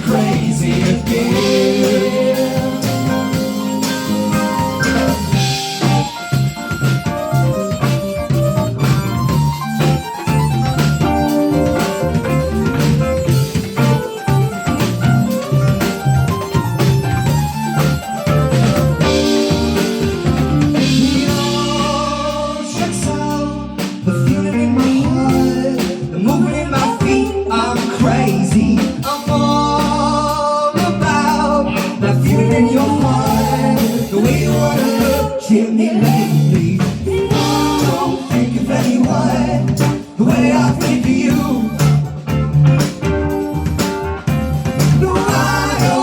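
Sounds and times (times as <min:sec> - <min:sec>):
person singing: 0:00.0 - 0:03.6, 0:21.0 - 0:42.1, 0:44.8 - 0:46.0
live band playing a song: 0:00.0 - 0:46.0.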